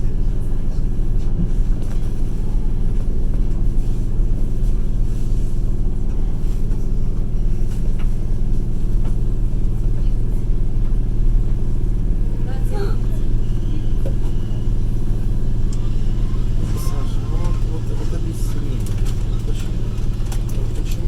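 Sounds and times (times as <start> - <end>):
train wheels rumbling: 10.7 - 21.0.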